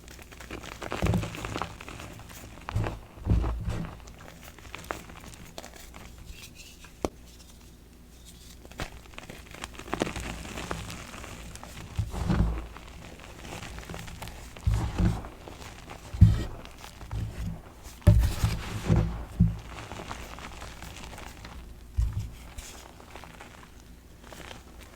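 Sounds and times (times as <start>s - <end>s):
dull thuds: 2.6s - 4.2s, 11.6s - 22.8s.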